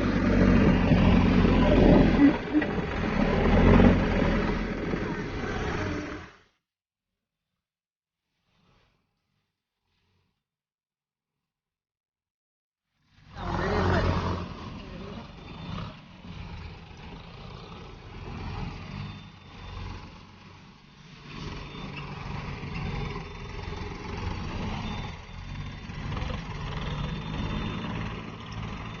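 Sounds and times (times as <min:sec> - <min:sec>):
tractor engine running: 0:00.0 - 0:06.4, 0:13.4 - 0:29.0.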